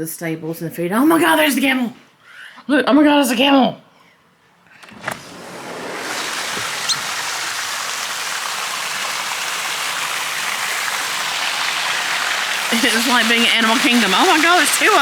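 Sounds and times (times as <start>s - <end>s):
steady even hiss: 5.3s - 15.0s.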